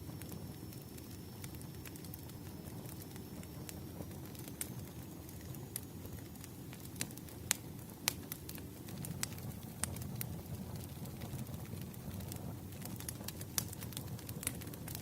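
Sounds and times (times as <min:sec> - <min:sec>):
fireplace crackling: 0:00.0 - 0:15.0.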